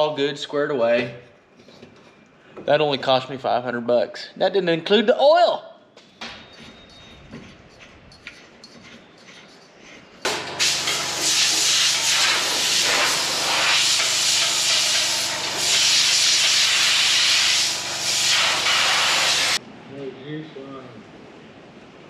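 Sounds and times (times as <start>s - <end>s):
loud steady hiss: 10.3s - 20.9s.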